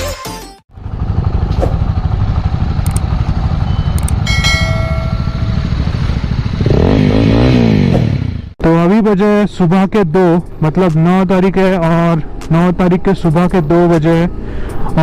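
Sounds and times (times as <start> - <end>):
motorcycle engine revving: 0.7 - 8.6
brief steady tone: 3.6 - 5.8.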